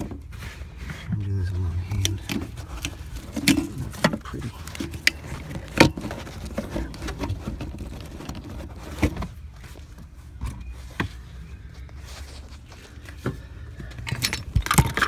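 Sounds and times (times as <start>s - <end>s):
low steady rumble: 0.3s - 10.3s.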